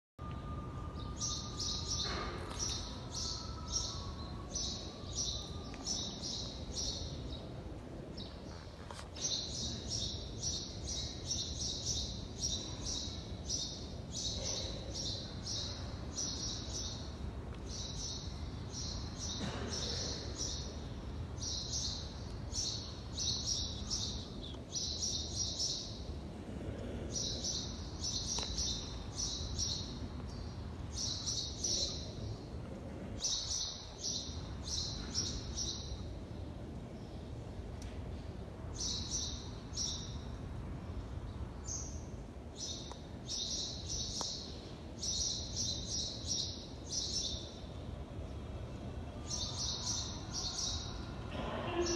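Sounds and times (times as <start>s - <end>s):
low steady hum: 0.2s - 51.9s
small birds chirping: 26.8s - 32.6s, 41.6s - 48.4s.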